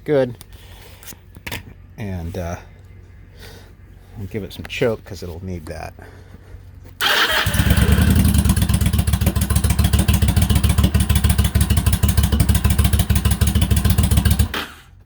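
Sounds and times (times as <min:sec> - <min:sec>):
starter motor engaging: 0:07.0 - 0:15.0
motorcycle engine lumpy beat: 0:07.5 - 0:15.0.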